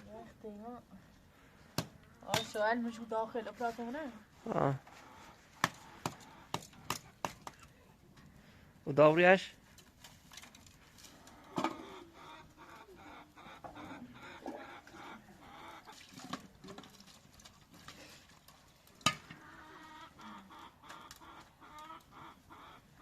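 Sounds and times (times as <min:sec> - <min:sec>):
chickens clucking: 0:04.6 - 0:07.2, 0:11.1 - 0:16.7, 0:19.1 - 0:23.0.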